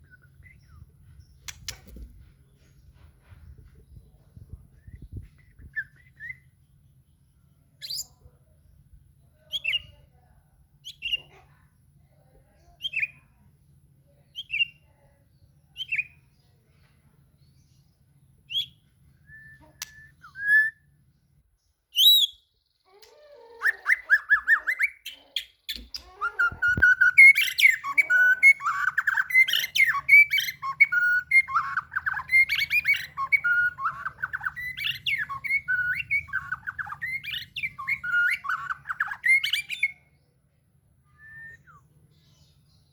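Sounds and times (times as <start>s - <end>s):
loud fast bird song: 0.0s - 10.2s, 10.8s - 11.4s, 12.5s - 23.0s, 23.6s - 42.9s
bird whistled notes: 26.4s - 40.0s.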